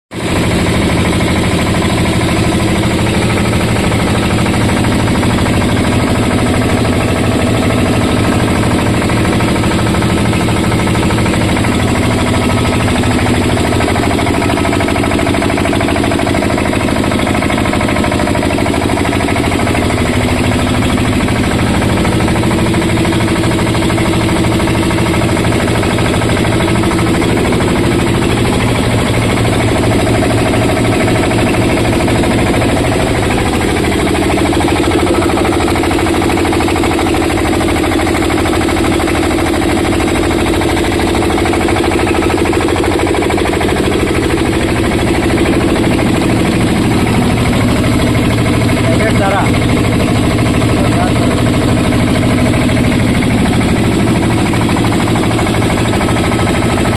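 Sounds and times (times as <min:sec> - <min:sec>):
diesel engine running a rice mill: 0:00.1 - 0:56.9.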